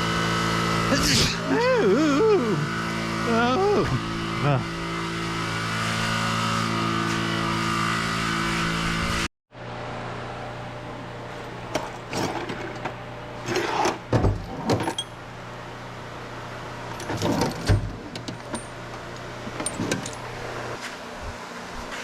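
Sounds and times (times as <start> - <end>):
metal tools clinking and rattling: 14.6 - 15.2, 16.9 - 20.4.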